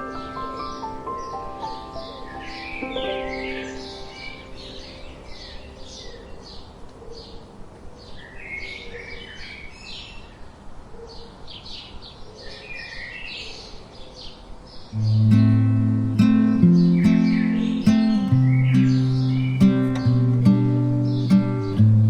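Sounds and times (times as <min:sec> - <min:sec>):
sustained music notes: 0:00.0 - 0:06.4, 0:15.0 - 0:22.0
low steady hiss: 0:00.0 - 0:12.3, 0:13.0 - 0:22.0
songbirds chirping: 0:00.0 - 0:22.0.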